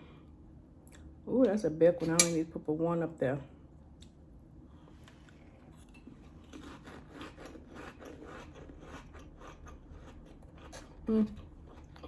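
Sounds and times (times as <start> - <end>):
chewing crunchy cracker: 5.1 - 12.0.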